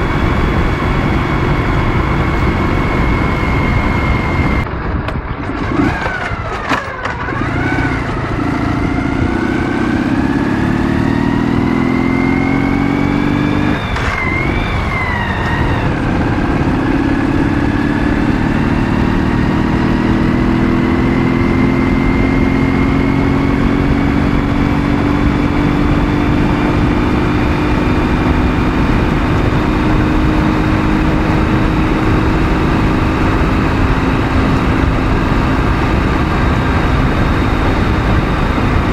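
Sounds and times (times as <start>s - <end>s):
motorcycle engine accelerating: 0.0s - 38.9s
wind and road noise: 0.0s - 38.9s.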